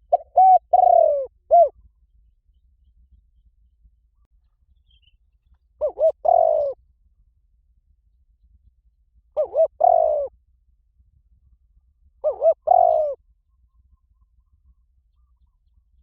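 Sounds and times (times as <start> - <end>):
dove cooing: 0.0 - 1.8, 5.8 - 6.8, 9.4 - 10.3, 12.2 - 13.2.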